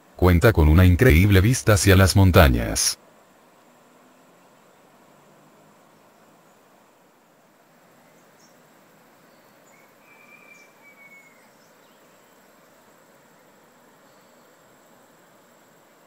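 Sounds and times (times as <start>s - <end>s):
low hiss: 0.0s - 16.0s
bird whistle: 9.7s - 11.5s.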